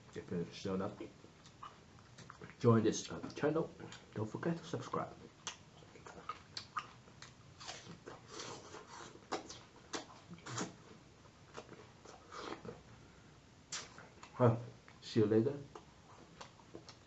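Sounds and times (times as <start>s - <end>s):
person chewing fruit: 1.2s - 2.6s, 5.2s - 12.9s, 13.7s - 15.0s, 15.7s - 17.0s.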